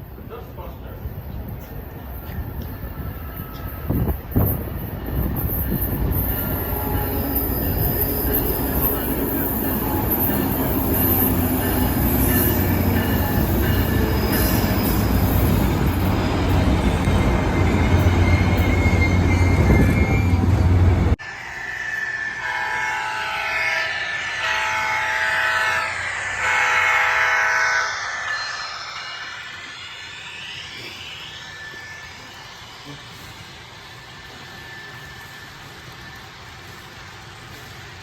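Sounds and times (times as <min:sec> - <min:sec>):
train rumbling past: 0:00.0 - 0:38.0
wheel squeal: 0:05.4 - 0:24.0.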